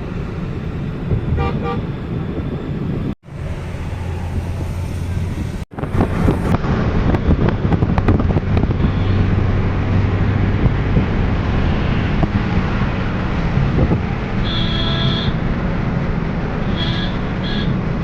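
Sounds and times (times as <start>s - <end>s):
road traffic noise: 0.0s - 18.0s
vehicle horn toots: 1.4s - 1.8s, 8.8s - 9.3s, 14.4s - 15.4s, 16.6s - 17.8s.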